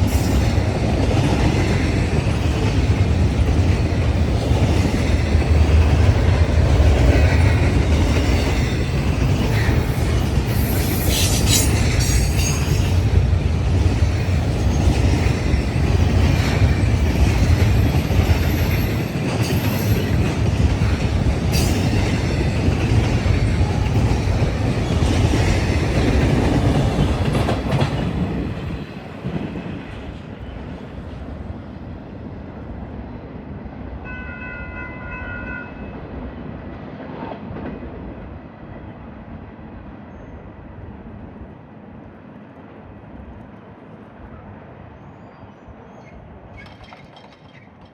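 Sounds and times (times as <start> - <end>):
freight train rumble and clatter: 0.0 - 47.9
high wheel squeals: 10.5 - 12.9.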